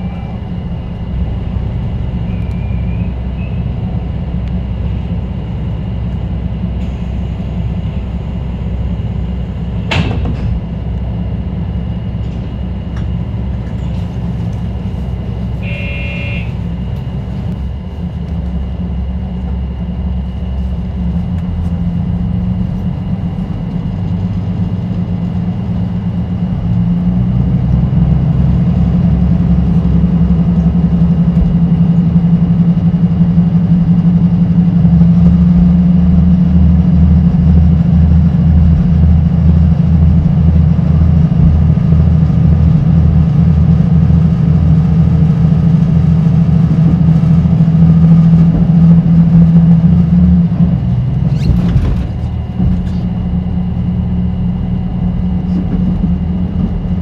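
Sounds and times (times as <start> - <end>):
train running: 0.0 - 57.0
short beep: 15.6 - 16.6
low knocking beat: 34.7 - 44.7, 55.1 - 57.0.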